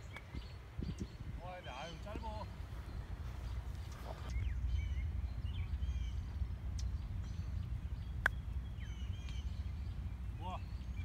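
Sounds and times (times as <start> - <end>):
small birds chirping: 0.0 - 11.0
steady low rumble: 2.4 - 11.0.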